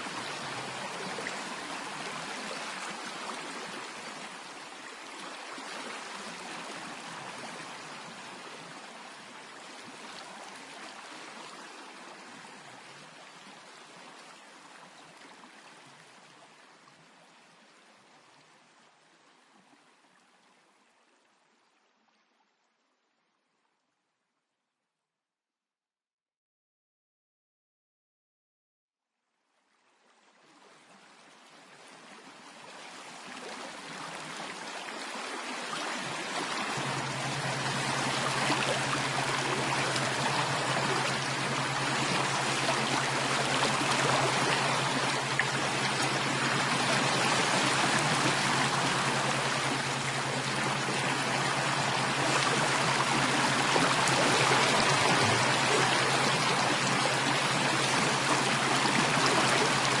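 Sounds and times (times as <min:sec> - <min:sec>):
running water: 0:00.0 - 0:20.2, 0:30.4 - 1:00.0
low steady hum: 0:36.0 - 1:00.0.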